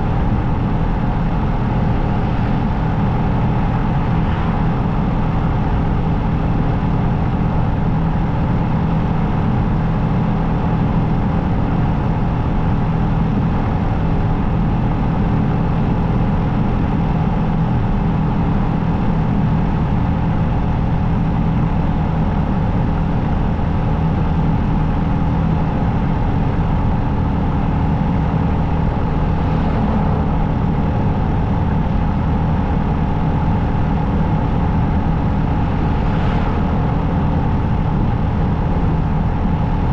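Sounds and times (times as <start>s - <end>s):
rushing noise: 24.7s - 39.9s.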